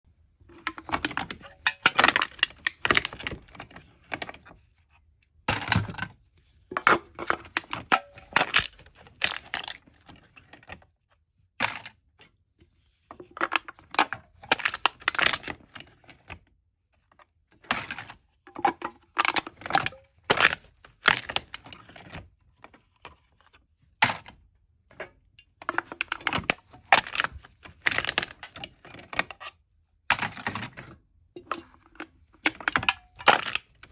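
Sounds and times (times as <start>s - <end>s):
aluminium cans being crushed: 0.4s - 4.4s, 5.5s - 10.0s, 13.3s - 15.7s, 17.7s - 22.2s, 25.6s - 29.5s, 30.1s - 33.9s.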